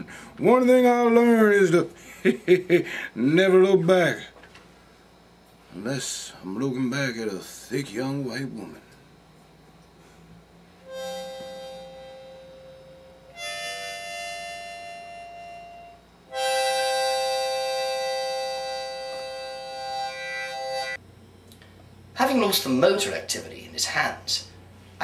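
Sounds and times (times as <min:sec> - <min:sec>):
harmonica chords: 0:10.8 - 0:21.0.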